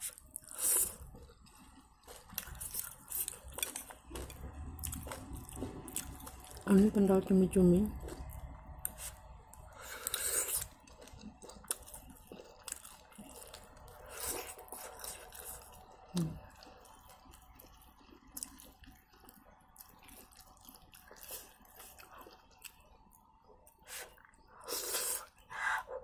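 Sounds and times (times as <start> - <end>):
wet chewing of noodles: 0.0 - 6.8, 7.9 - 26.0.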